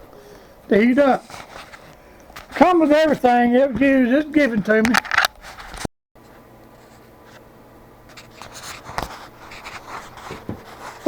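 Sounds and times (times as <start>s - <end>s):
steady low hum: 0.0s - 11.0s
faint handling scraping: 0.7s - 5.9s.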